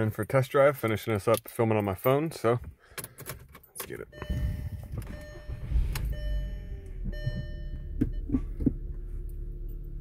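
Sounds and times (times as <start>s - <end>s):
dashboard warning chime: 3.9s - 8.9s
car engine idling: 4.1s - 10.0s.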